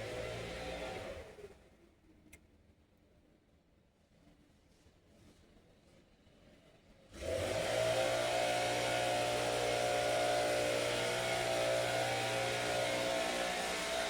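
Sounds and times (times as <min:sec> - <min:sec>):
motor running: 0:07.4 - 0:14.0.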